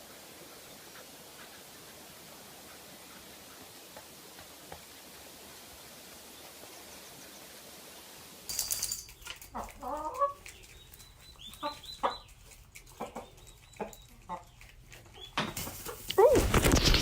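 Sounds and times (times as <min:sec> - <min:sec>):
chicken clucking and squawking: 0:09.5 - 0:16.5.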